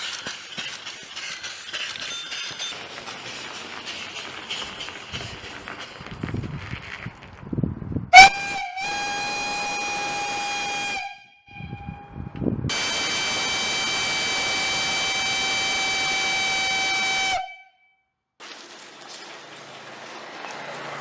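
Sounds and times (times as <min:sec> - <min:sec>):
steam hiss: 0:00.0 - 0:06.6, 0:08.2 - 0:11.1, 0:12.7 - 0:17.5
steam whistle blowing: 0:08.2 - 0:17.8
low rumble: 0:11.5 - 0:12.7
engine hum: 0:19.3 - 0:21.0.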